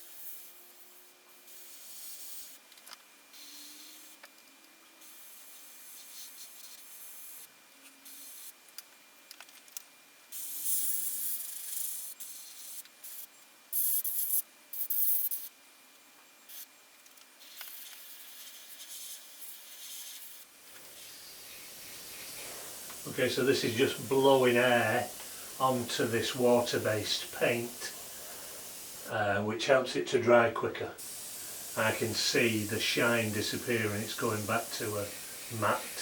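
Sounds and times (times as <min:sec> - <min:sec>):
airbrush hissing: 0:17.4 - 0:29.3, 0:31.0 - 0:36.0.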